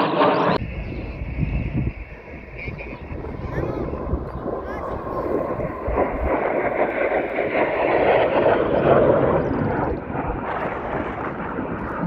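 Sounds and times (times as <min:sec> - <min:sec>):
aircraft flying past: 0:00.0 - 0:12.0.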